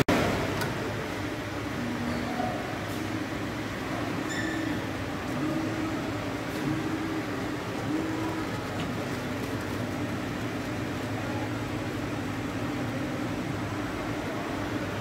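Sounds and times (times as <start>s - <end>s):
cheese grating machine whirring: 3.8s - 15.0s.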